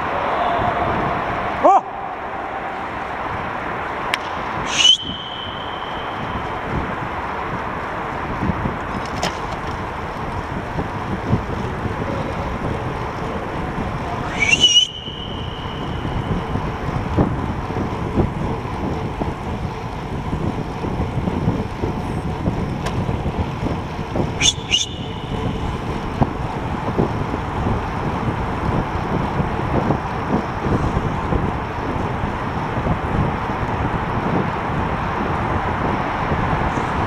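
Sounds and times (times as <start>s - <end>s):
high-pitched squeal: 0.0s - 3.9s, 4.6s - 6.8s, 14.1s - 16.8s
rushing wind and tyre noise: 0.0s - 37.0s
wind buffeting microphone: 0.0s - 37.0s.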